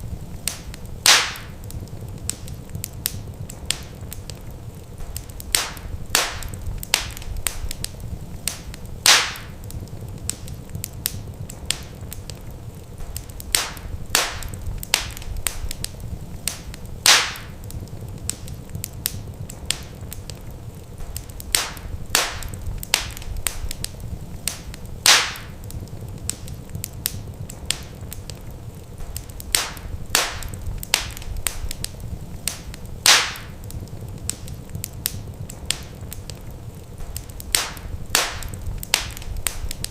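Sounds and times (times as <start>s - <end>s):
low steady rumble: 0.0s - 39.9s
wood fire crackling: 0.0s - 39.9s
loud fire pop: 0.5s - 1.6s, 5.0s - 7.9s, 8.5s - 9.6s, 13.0s - 15.9s, 16.5s - 17.6s, 21.0s - 23.9s, 24.5s - 25.6s, 29.0s - 31.9s, 32.5s - 33.6s, 37.0s - 39.9s.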